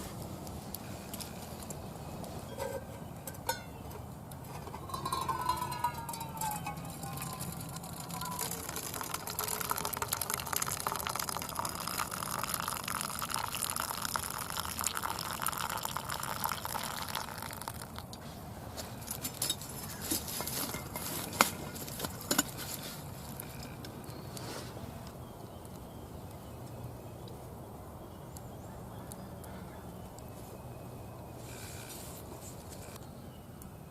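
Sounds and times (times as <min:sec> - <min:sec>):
sharp clinks and knocks: 0:02.5 - 0:10.1, 0:19.0 - 0:23.8
coffee pouring into a cup: 0:04.8 - 0:18.1.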